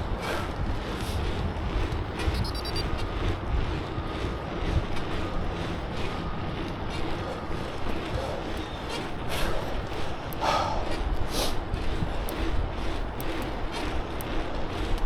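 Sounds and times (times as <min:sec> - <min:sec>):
wind buffeting microphone: 0:00.0 - 0:15.0
faint high ticks: 0:01.9 - 0:03.0, 0:12.0 - 0:15.0.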